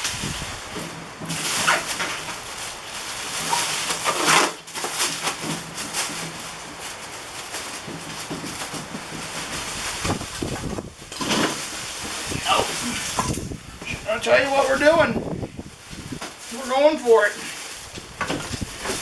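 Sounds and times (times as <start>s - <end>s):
packaging rustling and scraping: 0.0s - 19.0s.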